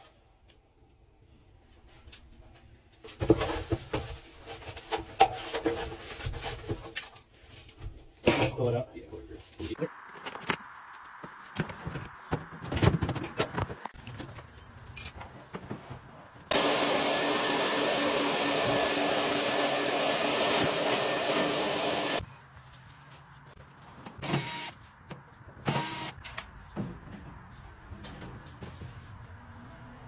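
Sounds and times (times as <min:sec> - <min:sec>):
vacuum cleaner motor running: 0:16.5 - 0:22.2.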